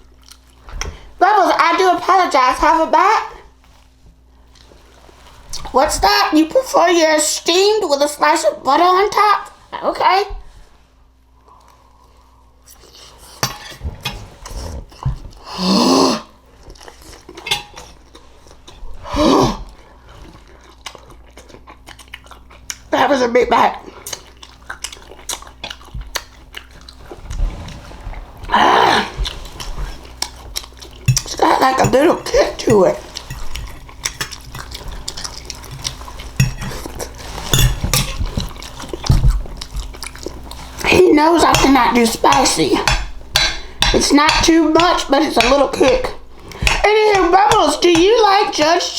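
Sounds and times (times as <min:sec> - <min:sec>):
chewing: 0:00.0 - 0:01.1, 0:03.6 - 0:05.8, 0:16.3 - 0:19.0, 0:19.6 - 0:22.9, 0:23.7 - 0:48.9
fork scraping on a plate: 0:31.0 - 0:38.8.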